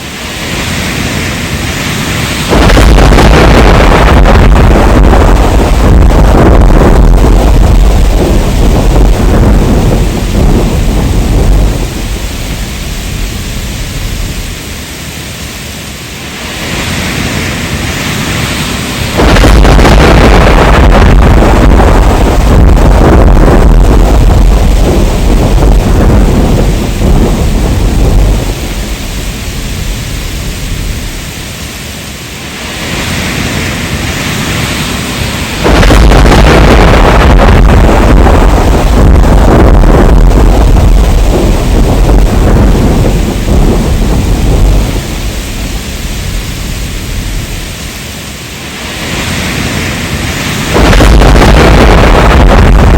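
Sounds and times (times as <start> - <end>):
heavy rain: 0.0 - 52.9
thunder rumbling: 0.0 - 52.9.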